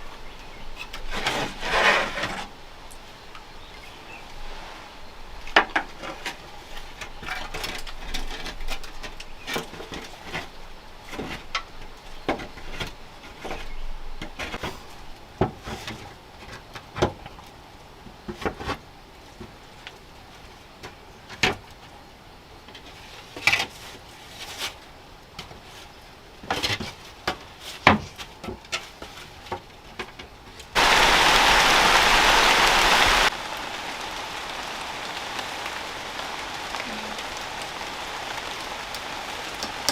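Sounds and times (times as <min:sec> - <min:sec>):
loud rush of rain: 0:00.0 - 0:08.5, 0:30.7 - 0:39.9
light rain patter: 0:00.0 - 0:39.9.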